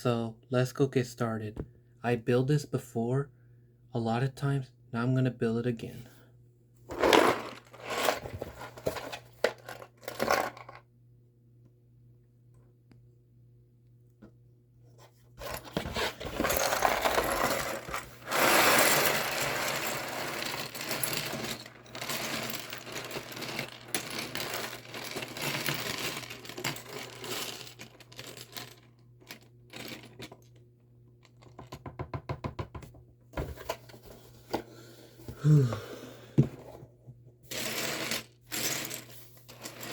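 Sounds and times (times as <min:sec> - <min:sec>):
plastic toy pieces clattering: 0:06.9 - 0:10.8, 0:15.4 - 0:28.8.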